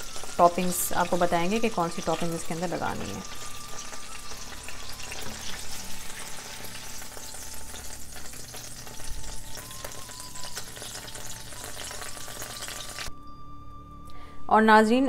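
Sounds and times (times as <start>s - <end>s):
patty sizzling in a frying pan: 0.0s - 13.1s.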